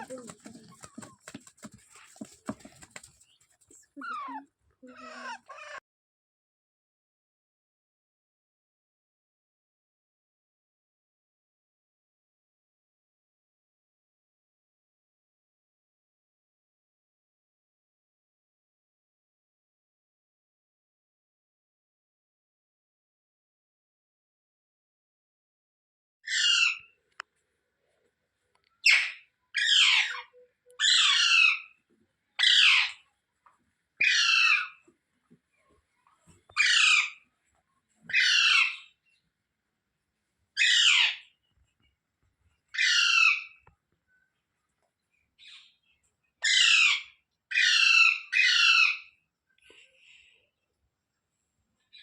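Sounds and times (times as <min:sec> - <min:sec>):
parrot squawking: 0:04.0 - 0:05.8, 0:28.8 - 0:31.8, 0:32.4 - 0:33.0, 0:34.0 - 0:34.8, 0:36.6 - 0:37.2, 0:38.1 - 0:38.9, 0:40.6 - 0:41.3, 0:42.8 - 0:43.6, 0:46.4 - 0:49.1.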